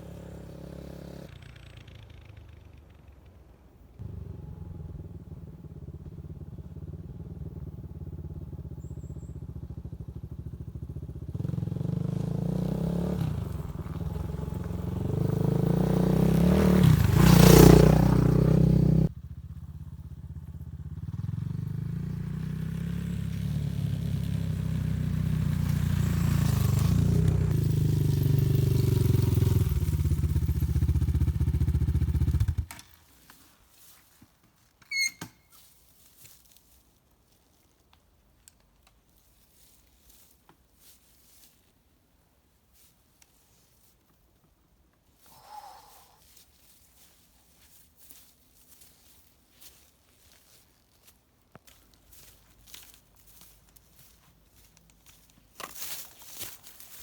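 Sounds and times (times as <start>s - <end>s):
small motorcycle engine running: 0.0s - 32.7s.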